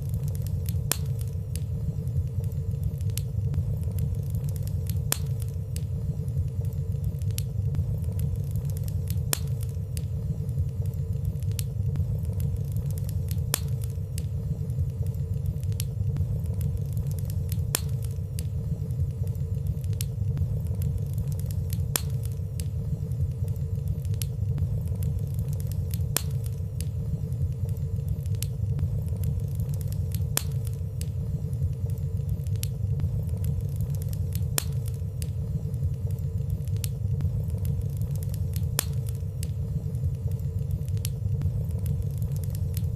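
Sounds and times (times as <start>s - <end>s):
fire crackling: 0.0s - 42.9s
fire rumbling in fireplace: 0.0s - 42.9s.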